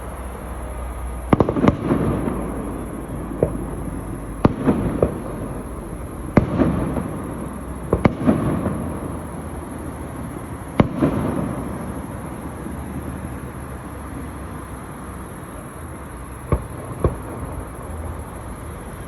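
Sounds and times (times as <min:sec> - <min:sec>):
rumbling crackling tail: 0:00.0 - 0:14.8
fireworks exploding: 0:00.0 - 0:19.0.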